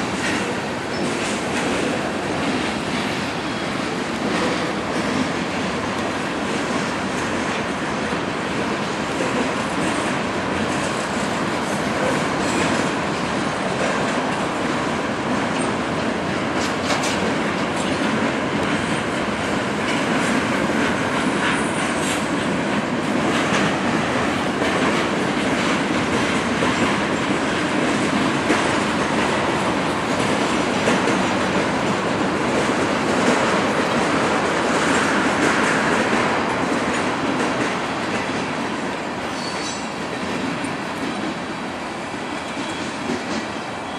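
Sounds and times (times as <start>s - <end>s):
freight train rumbling past: 0.0s - 43.9s
wheels clicking over rail joints: 8.6s - 41.4s.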